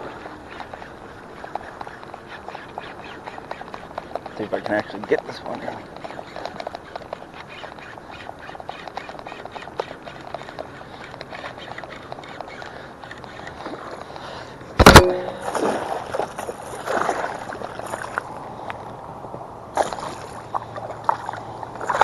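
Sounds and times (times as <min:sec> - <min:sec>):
water sloshing and thrashing: 0:14.8 - 0:18.7, 0:19.7 - 0:22.0
fish splashing in water: 0:15.0 - 0:18.4, 0:19.7 - 0:22.0.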